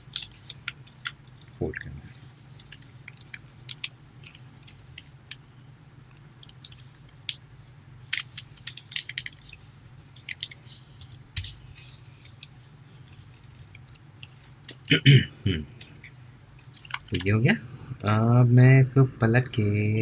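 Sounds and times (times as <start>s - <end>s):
paper crinkling: 0.0s - 5.5s, 6.1s - 14.8s
steady low hum: 0.0s - 20.0s.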